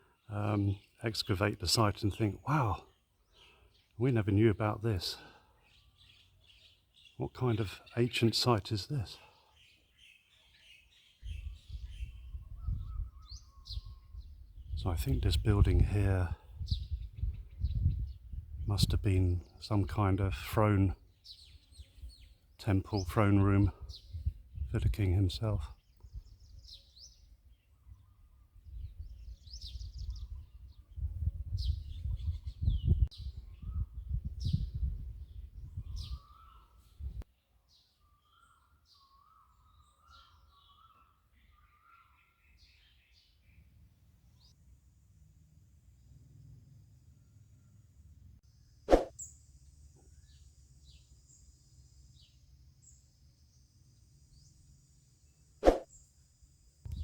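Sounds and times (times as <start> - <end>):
bird chirps: 5.4 - 8.6, 9.3 - 15.2, 20.8 - 24.7, 25.7 - 44.6, 47.2 - 57.0
birds whistling: 9.6 - 14.7, 35.8 - 36.8, 38.0 - 43.6
insect drone: 44.6 - 56.9.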